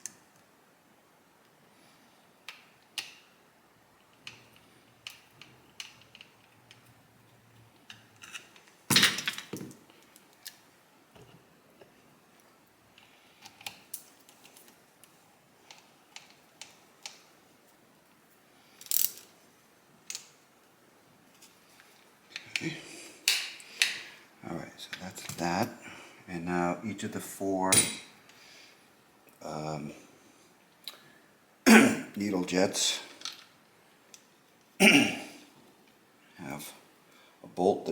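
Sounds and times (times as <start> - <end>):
metallic clicks of small parts: 4.0 - 10.6, 15.7 - 17.3, 18.8 - 19.3, 20.0 - 20.4, 33.2 - 34.3.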